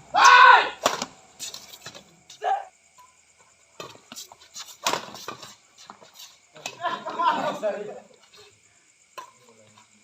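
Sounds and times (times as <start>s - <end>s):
person shouting: 0.1s - 0.8s
rackets hitting shuttlecock: 0.2s - 2.1s, 3.8s - 5.5s.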